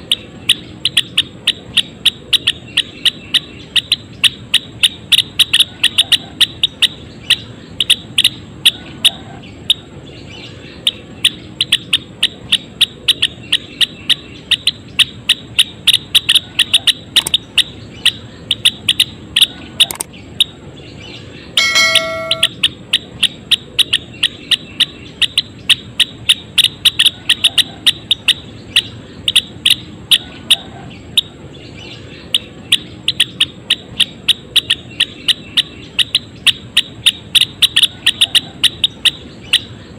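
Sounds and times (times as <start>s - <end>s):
bird calling sharp chips: 10.7s - 20.6s, 21.6s - 39.9s
bird held clear note: 21.6s - 22.5s.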